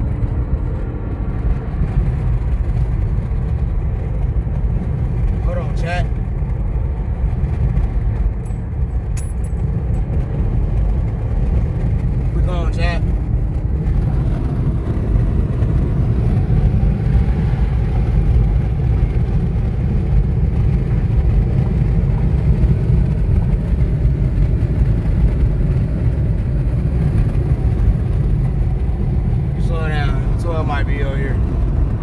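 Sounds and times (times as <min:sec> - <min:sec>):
car engine and road rumble: 0:00.0 - 0:32.0.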